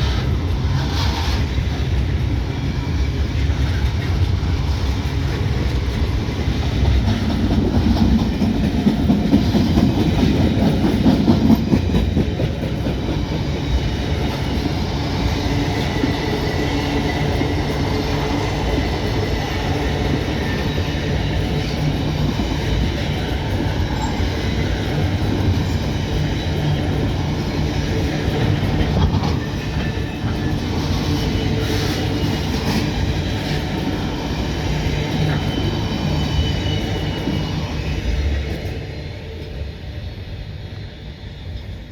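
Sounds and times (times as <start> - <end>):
freight train rolling past: 0.0 - 41.9.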